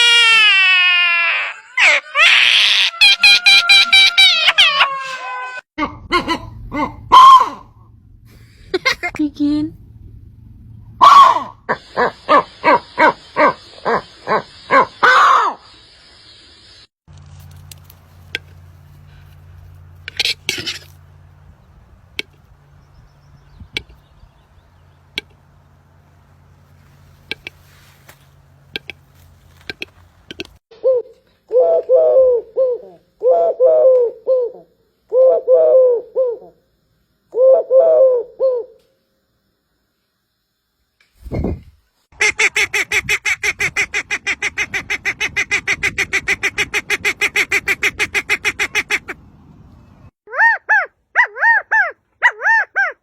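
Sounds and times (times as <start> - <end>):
steady low hum: 5.8 - 15.0, 15.8 - 30.6
bird honking calls: 11.0 - 15.4.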